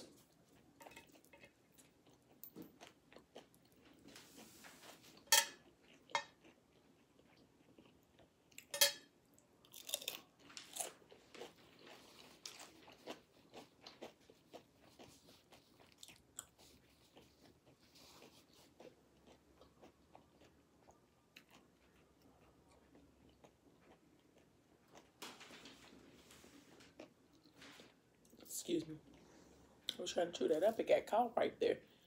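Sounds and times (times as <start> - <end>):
tortilla chips crunching: 9.6 - 26.1.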